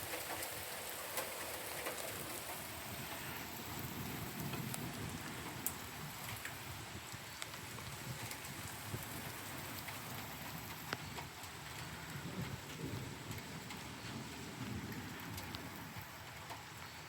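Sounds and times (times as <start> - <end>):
raindrops ticking: 0.0 - 17.0
steady rain falling: 0.0 - 17.0.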